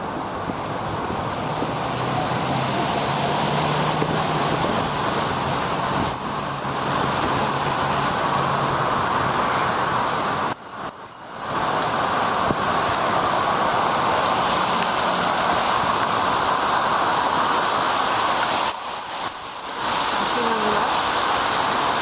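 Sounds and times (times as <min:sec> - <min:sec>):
wet road noise: 0:00.0 - 0:22.0
bicycle bell ringing: 0:10.3 - 0:11.6, 0:18.7 - 0:19.9.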